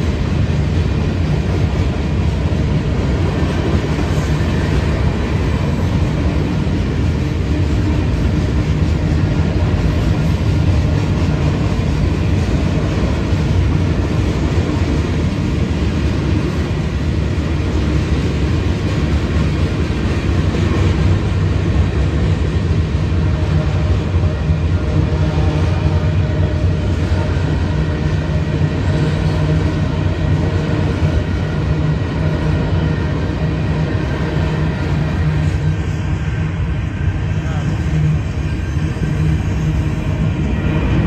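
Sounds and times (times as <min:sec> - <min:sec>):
freight train rumbling past: 0:00.0 - 0:41.0.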